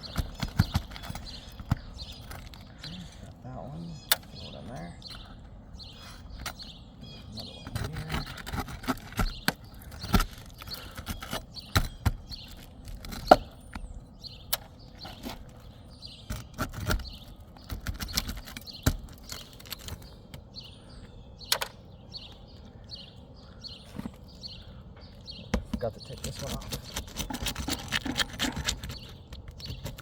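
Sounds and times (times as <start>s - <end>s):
tool prying nails under shingles: 0.0s - 3.2s, 7.5s - 13.9s, 16.2s - 20.5s, 25.4s - 30.0s
birds chirping: 0.0s - 30.0s.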